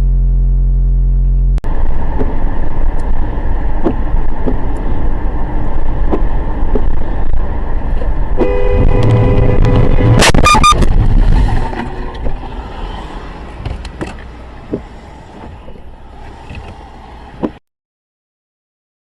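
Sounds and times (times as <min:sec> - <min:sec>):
car road and engine noise: 0:00.0 - 0:17.6
horn-like tone: 0:08.4 - 0:10.9.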